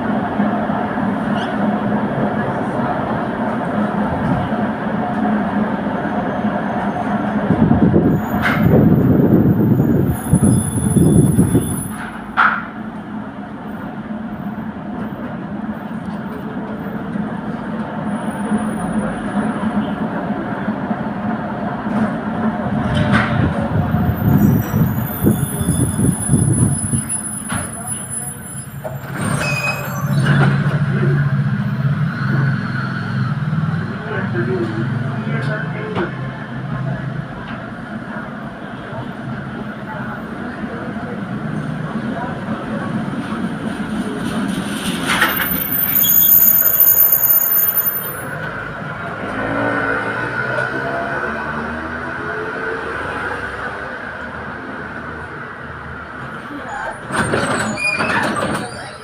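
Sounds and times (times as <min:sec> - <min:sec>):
tram rumbling on rails: 0:00.0 - 0:59.0
tram wheel squeals: 0:05.1 - 0:12.4, 0:18.0 - 0:20.1, 0:23.6 - 0:34.2, 0:44.3 - 0:48.5, 0:56.2 - 0:59.0.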